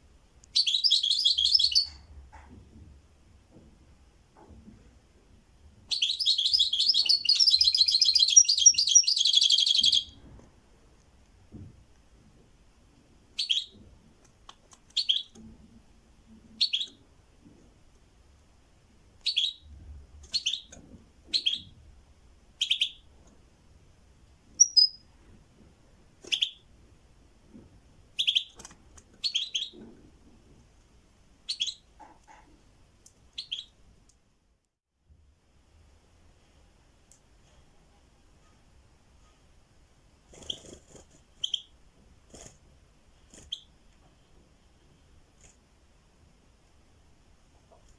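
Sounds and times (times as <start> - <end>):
songbird chirping: 0.4 - 2.1, 5.9 - 10.2, 13.4 - 13.8, 16.6 - 17.0, 19.2 - 21.8, 22.6 - 23.1, 24.5 - 25.2, 28.2 - 28.6, 31.5 - 31.9, 33.3 - 33.8.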